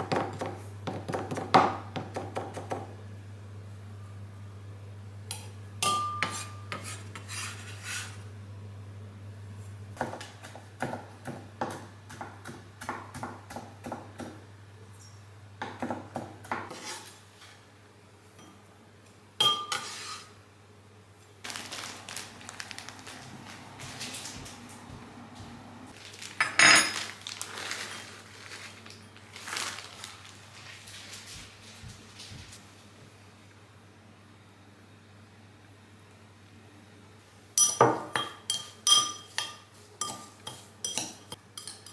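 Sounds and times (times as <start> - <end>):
dishes and cutlery clattering: 26.4 - 27.2, 37.6 - 41.9.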